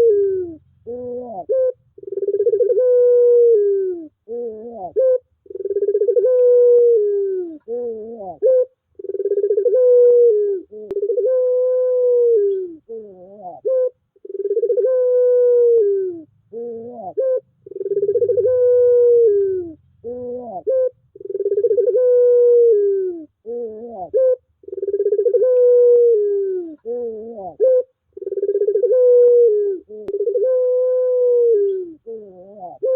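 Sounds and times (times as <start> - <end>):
dove cooing: 0.0 - 32.9.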